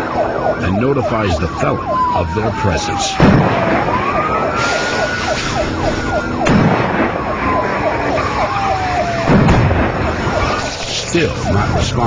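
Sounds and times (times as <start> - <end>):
police siren wailing: 0.0 - 12.0
police siren yelping: 0.0 - 12.0
vehicle noise: 0.0 - 12.0
sharp thumps: 9.2 - 10.9.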